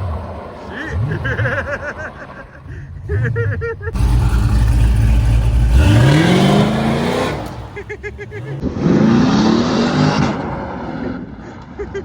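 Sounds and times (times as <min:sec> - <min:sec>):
car engine revving: 0:03.3 - 0:10.6.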